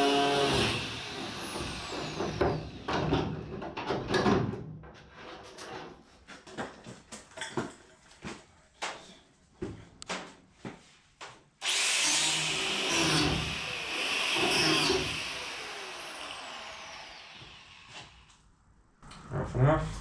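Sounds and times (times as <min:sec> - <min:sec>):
objects knocking and clunking: 0:02.0 - 0:09.0.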